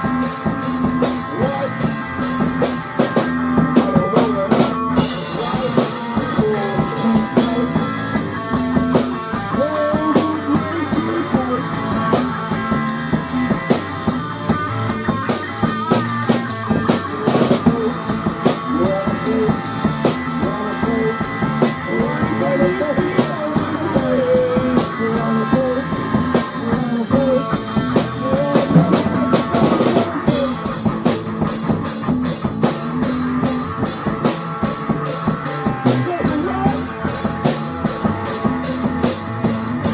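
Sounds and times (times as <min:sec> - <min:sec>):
drum kit: 0:00.0 - 0:39.9
guitar playing: 0:00.0 - 0:39.9
rock music: 0:00.0 - 0:39.9.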